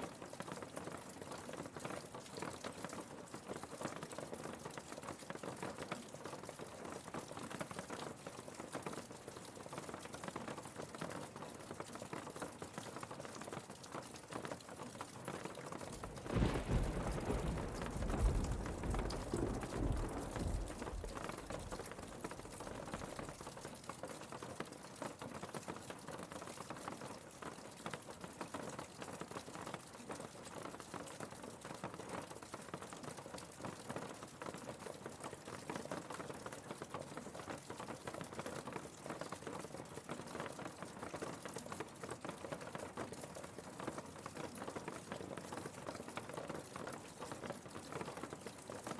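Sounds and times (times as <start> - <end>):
rain pattering: 0.0 - 48.9
low rumble: 16.0 - 23.2.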